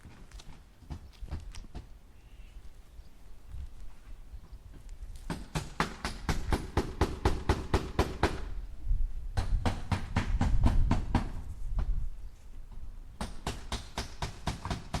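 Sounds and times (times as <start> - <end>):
hammer striking nails into wood: 5.3 - 8.5, 9.4 - 11.4, 13.2 - 15.0.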